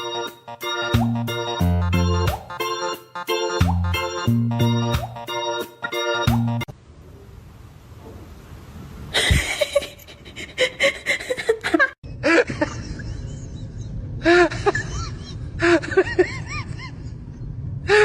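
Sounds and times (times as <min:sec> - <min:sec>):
person laughing: 0:09.1 - 0:17.2.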